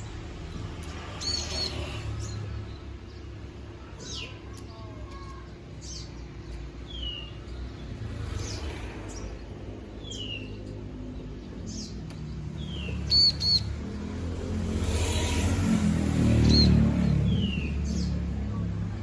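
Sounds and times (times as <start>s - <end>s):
bird chirping: 0.0s - 14.2s, 14.8s - 18.3s
low background hum: 0.0s - 14.5s.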